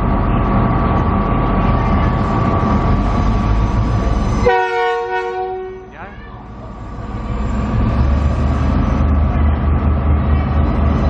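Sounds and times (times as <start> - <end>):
diesel locomotive engines rumbling: 0.0 - 11.0
locomotive chord horn: 4.4 - 6.0.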